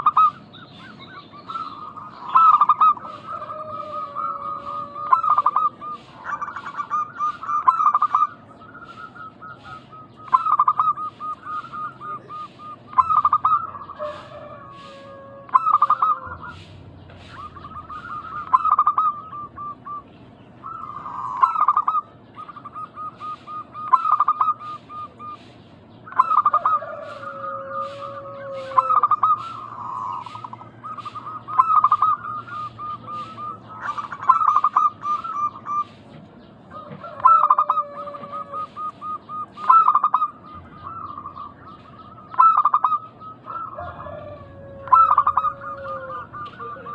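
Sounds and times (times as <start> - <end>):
doves cooing: 0.0 - 46.9.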